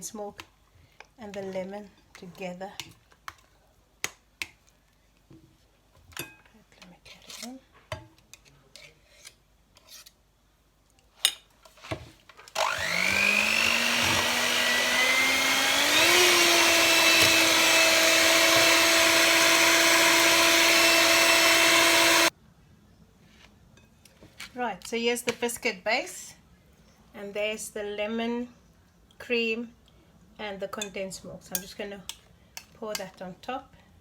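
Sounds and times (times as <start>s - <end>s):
electric mixer whirring: 12.6s - 22.3s.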